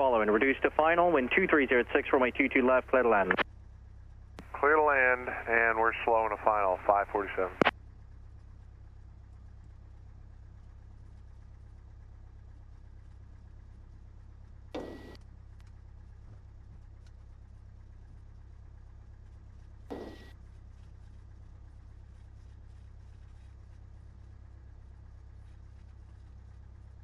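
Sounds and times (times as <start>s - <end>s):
aircraft engine idling: 0.0s - 27.0s.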